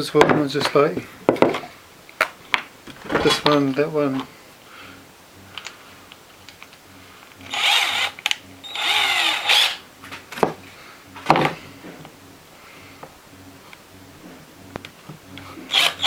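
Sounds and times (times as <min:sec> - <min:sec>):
power drill running: 0:04.7 - 0:13.6, 0:15.2 - 0:16.0.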